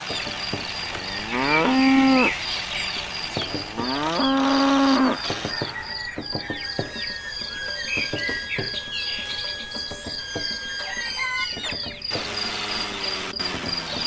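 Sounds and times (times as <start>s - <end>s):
high chirp: 0.1s - 14.0s
cow mooing: 1.0s - 2.4s, 3.5s - 5.3s.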